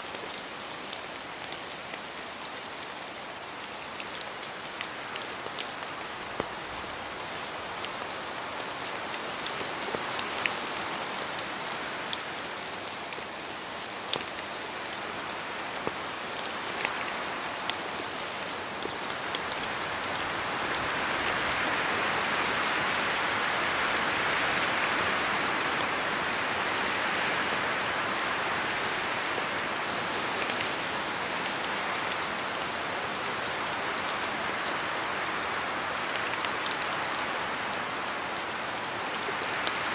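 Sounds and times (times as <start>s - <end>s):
rain falling in forest: 0.0s - 39.9s.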